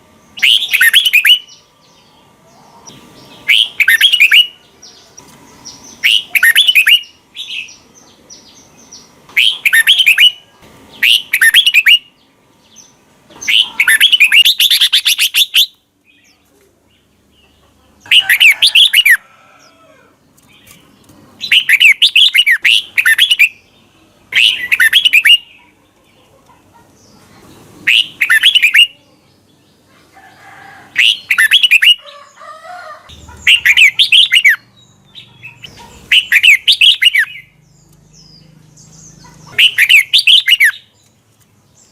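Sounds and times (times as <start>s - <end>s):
bird singing whistled phrases: 0.4s - 1.6s, 3.5s - 4.6s, 6.0s - 7.7s, 9.4s - 10.4s, 11.0s - 12.1s, 13.5s - 15.8s, 21.5s - 23.6s, 24.4s - 25.5s, 27.9s - 29.0s, 31.0s - 32.0s, 33.5s - 34.7s, 36.1s - 37.5s, 39.6s - 40.9s.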